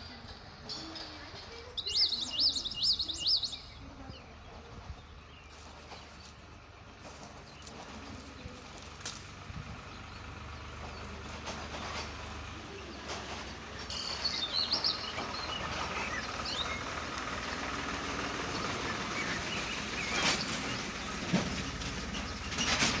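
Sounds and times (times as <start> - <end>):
steady rumble: 0.0 - 23.0
bird chirps: 0.9 - 7.8, 13.8 - 17.8, 18.4 - 22.8.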